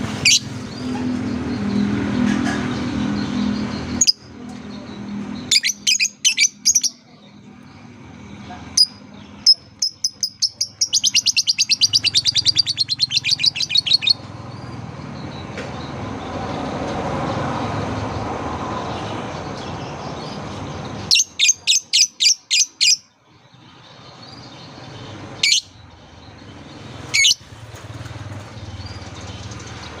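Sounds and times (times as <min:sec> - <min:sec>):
lovebird chirping: 0:03.9 - 0:07.2, 0:08.8 - 0:14.7, 0:21.0 - 0:23.1.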